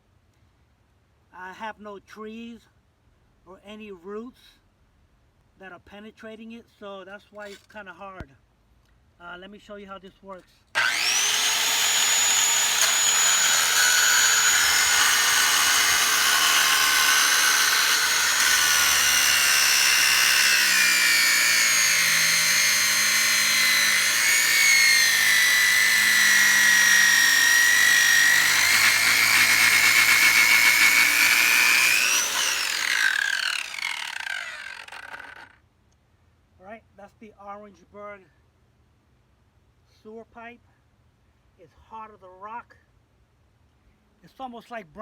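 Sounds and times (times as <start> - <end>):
circular saw cutting pipe: 10.8 - 35.6
saw spinning down: 10.8 - 35.6.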